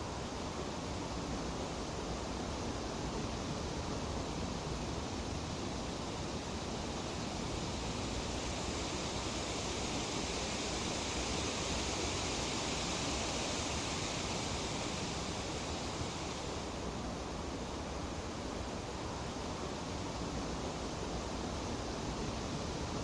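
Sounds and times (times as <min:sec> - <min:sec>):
leaves rustling in breeze: 0:04.8 - 0:17.7.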